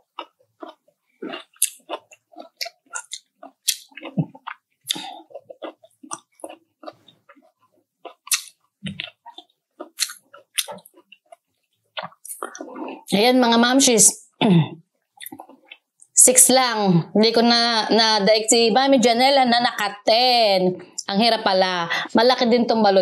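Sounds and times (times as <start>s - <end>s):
crunching and chewing: 0.0s - 13.2s, 15.1s - 16.1s.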